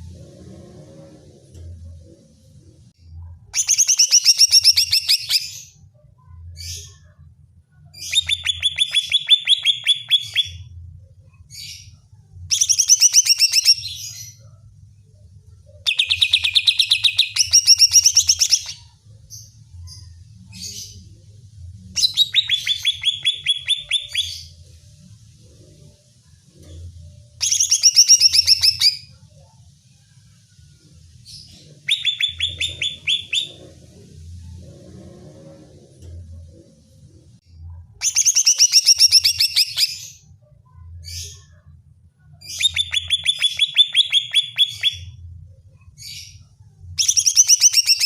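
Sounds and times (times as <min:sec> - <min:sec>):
bird singing fast chattering notes: 0:22.0 - 0:24.5, 0:27.4 - 0:29.1, 0:31.8 - 0:33.7, 0:47.0 - 0:48.0.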